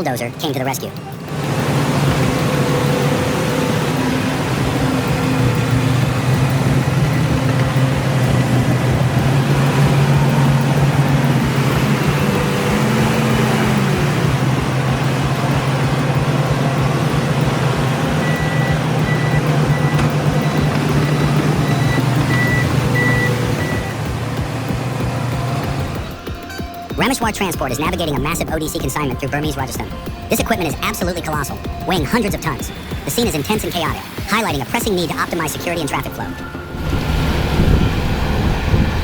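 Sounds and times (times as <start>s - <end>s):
heavy vehicle engine droning: 0.0s - 39.0s
reversing beeper: 1.9s - 24.4s.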